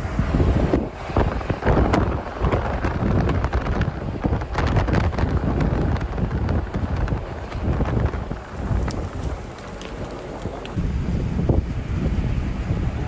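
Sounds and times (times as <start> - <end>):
wind buffeting microphone: 0.0 - 13.0
sharp clicks and pops: 6.7 - 10.8.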